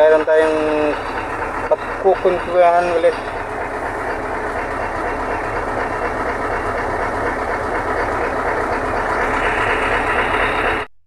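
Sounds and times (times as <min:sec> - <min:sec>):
road noise: 0:00.0 - 0:10.9
truck engine running: 0:00.0 - 0:11.0.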